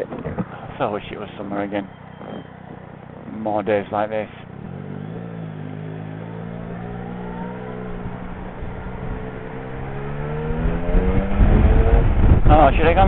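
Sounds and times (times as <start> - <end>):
motorcycle engine cruising: 0.0 - 13.0
wind noise: 6.7 - 13.0.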